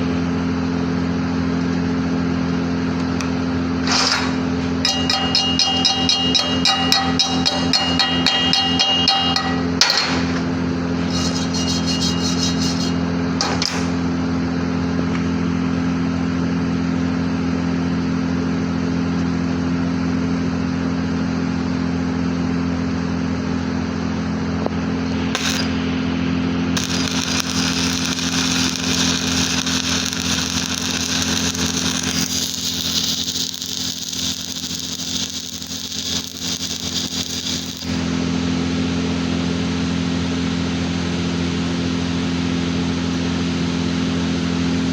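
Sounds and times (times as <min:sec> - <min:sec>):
welding machine humming: 0:02.6 - 0:10.4, 0:11.0 - 0:14.2, 0:24.8 - 0:40.3
welding arc hiss and crackle: 0:11.1 - 0:13.0, 0:25.2 - 0:25.9, 0:26.8 - 0:38.2.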